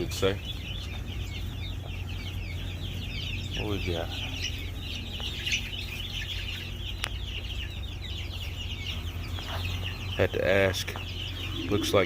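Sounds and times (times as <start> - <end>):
chicks peeping: 0.0 - 12.0
low hum: 11.1 - 12.0.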